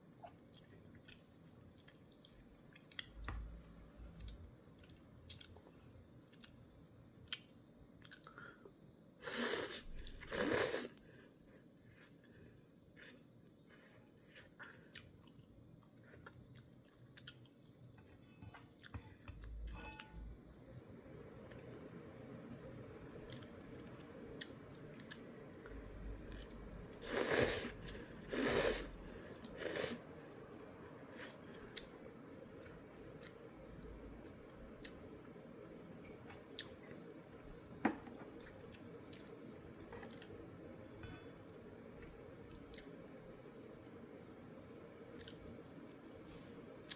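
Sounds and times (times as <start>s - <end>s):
loud noodle slurps: 9.2s - 11.0s, 27.0s - 28.9s, 29.6s - 30.0s.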